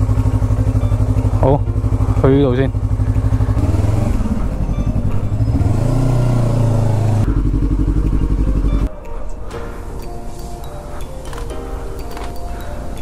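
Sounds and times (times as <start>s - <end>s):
motorcycle engine changing gears: 0.0s - 8.9s.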